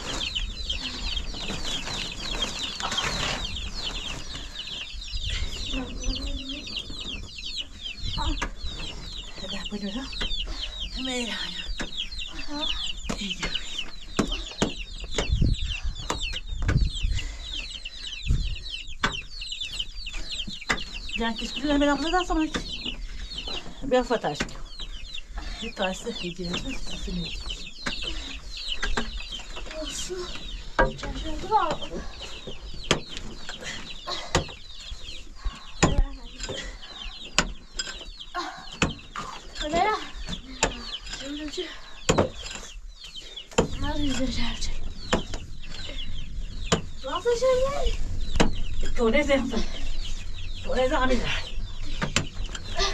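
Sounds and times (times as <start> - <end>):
birds peeping: 0.0 - 52.9
chicks cheeping: 0.0 - 52.9
dull low thumps: 3.4 - 33.2, 43.5 - 52.9.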